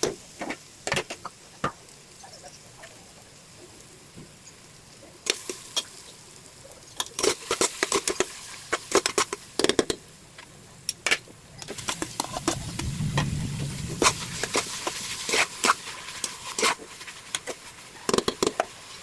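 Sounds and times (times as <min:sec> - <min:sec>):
low steady rumble: 0:12.2 - 0:14.9.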